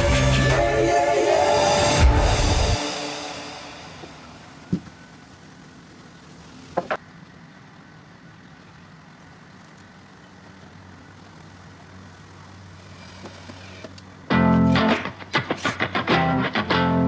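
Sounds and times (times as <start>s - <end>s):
guitar music: 0.0s - 4.0s, 14.3s - 17.0s.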